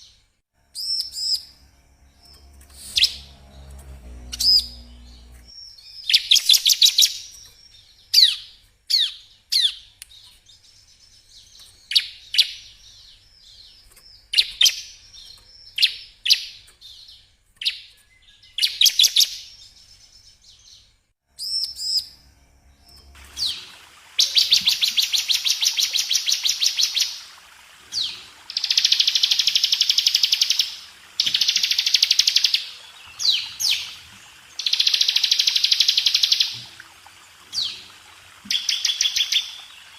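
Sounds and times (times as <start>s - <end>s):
bird buzzing trills: 0.6s - 5.6s, 21.4s - 39.9s.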